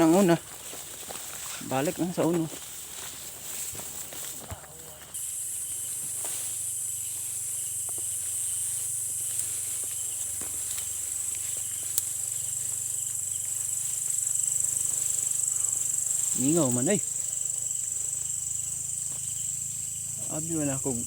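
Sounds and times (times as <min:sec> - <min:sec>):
crickets chirping chorus: 0:00.0 - 0:21.0
faint clicks: 0:10.7 - 0:12.2
sharp tick: 0:11.9 - 0:12.1.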